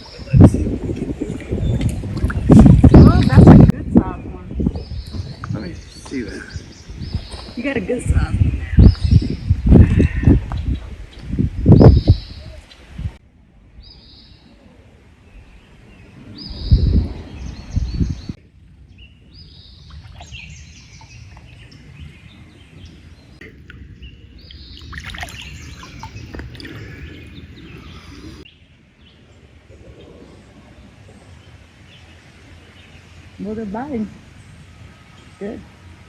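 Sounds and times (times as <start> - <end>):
birds chirping and singing: 2.9 - 12.8, 15.5 - 29.2
river rushing: 23.4 - 28.5.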